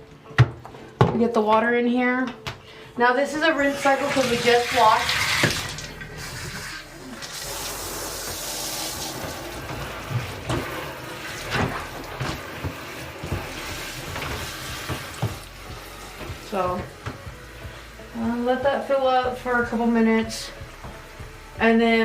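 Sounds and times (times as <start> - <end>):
water pouring into tub: 3.6 - 16.1.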